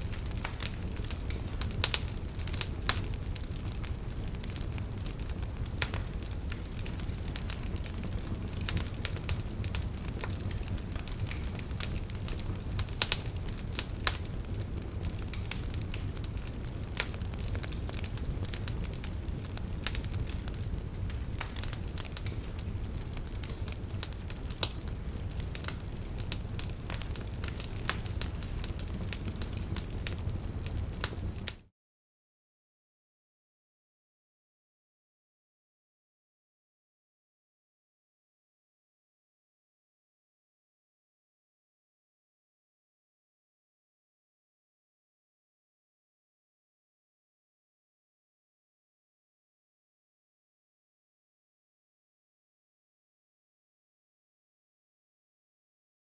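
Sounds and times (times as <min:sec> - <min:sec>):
flames rumbling: 0:00.0 - 0:31.6
wood fire crackling and popping: 0:00.0 - 0:31.6.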